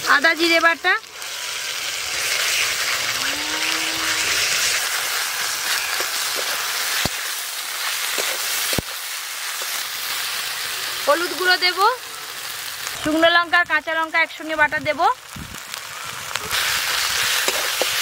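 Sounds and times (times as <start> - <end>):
food sizzling in hot oil: 0.0 - 18.0
spatula stirring in a wok: 4.1 - 11.8, 16.5 - 18.0.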